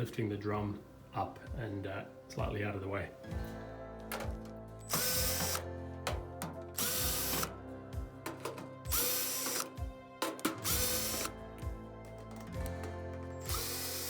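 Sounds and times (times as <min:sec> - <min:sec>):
cordless drill running: 0:04.9 - 0:05.6, 0:06.8 - 0:07.5, 0:08.9 - 0:09.8, 0:10.6 - 0:11.3, 0:13.4 - 0:14.0.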